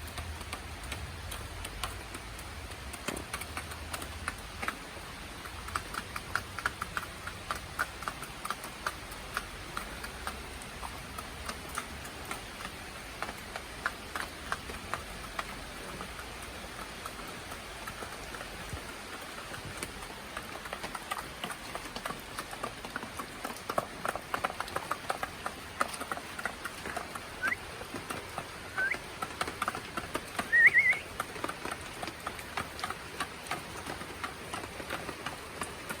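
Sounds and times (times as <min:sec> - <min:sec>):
chickens pecking feed: 0:00.0 - 0:36.0
chicken chirps: 0:27.4 - 0:27.6, 0:28.7 - 0:29.0, 0:30.4 - 0:31.1.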